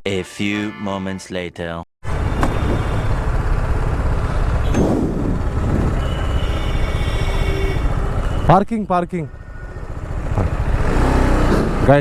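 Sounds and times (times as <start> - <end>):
motorcycle engine running: 2.0 - 12.0.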